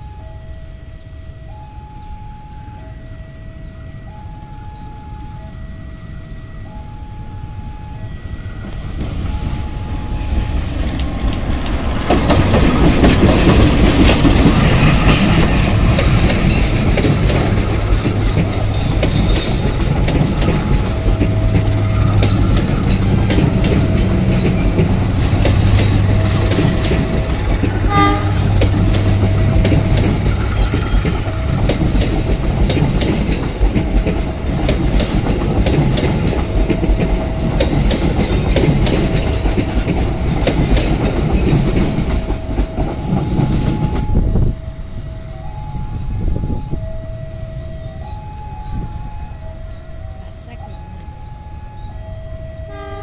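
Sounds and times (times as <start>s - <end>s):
train wheels clattering over rails: 8.6s - 44.4s.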